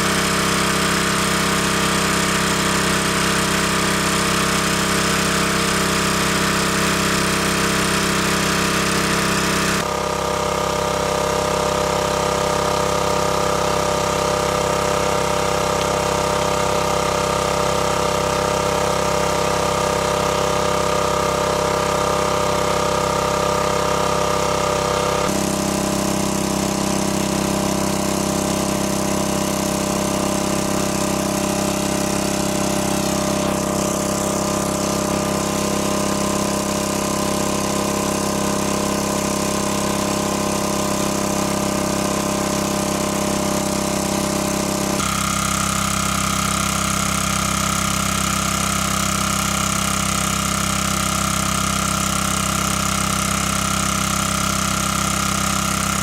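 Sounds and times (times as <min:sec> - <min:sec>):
motor humming: 0:24.7 - 0:48.0.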